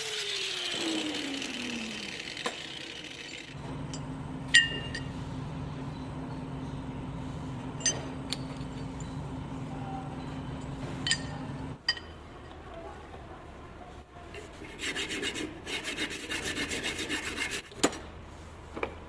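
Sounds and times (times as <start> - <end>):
steady low hum: 0.5 - 17.6
metallic clinks of steel parts: 7.8 - 9.2, 10.6 - 12.2.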